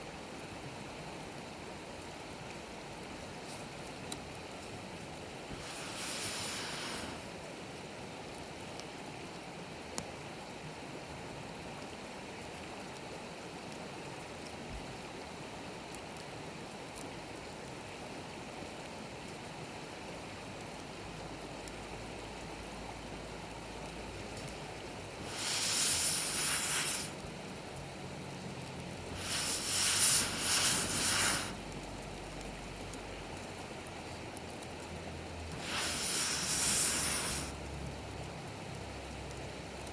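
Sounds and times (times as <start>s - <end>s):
campfire crackling: 2.5s - 8.9s, 23.2s - 39.9s
loud hissing rushes: 5.5s - 7.5s, 25.2s - 27.2s, 29.1s - 31.7s, 35.5s - 37.7s.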